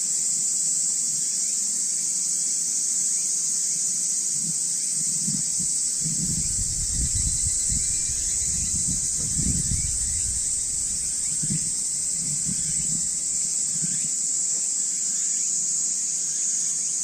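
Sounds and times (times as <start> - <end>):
night insects chorus: 0.0 - 17.0
low rumbling: 5.4 - 13.6.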